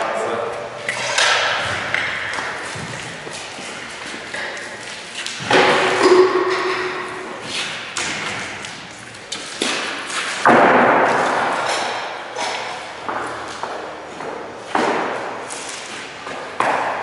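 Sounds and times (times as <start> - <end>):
heavy echoing thuds: 1.1 - 3.5, 9.6 - 13.4.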